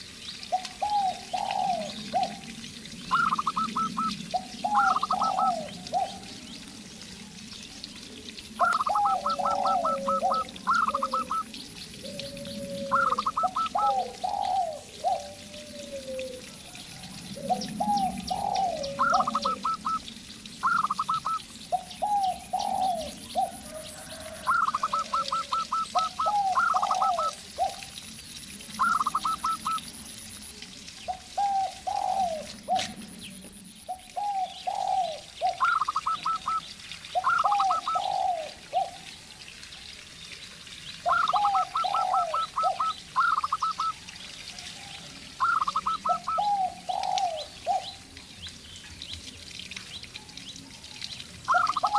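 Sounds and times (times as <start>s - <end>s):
doves cooing: 0.5s - 6.4s, 8.4s - 28.0s, 28.7s - 29.9s, 31.1s - 39.1s, 41.0s - 48.1s, 51.5s - 51.9s
small birds chirping: 24.6s - 51.9s.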